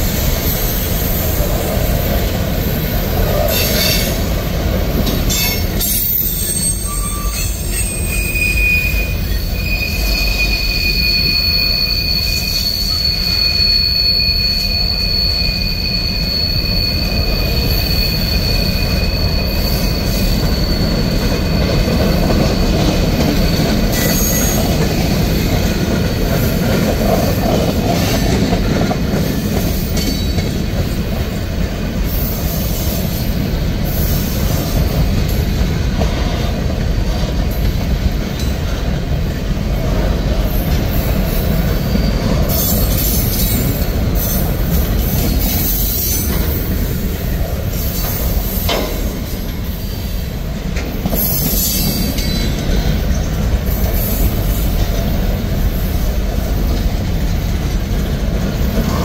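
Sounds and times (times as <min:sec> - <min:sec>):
freight train wheels rumbling: 0:00.0 - 0:59.0
short high-pitched squeals: 0:05.3 - 0:24.7.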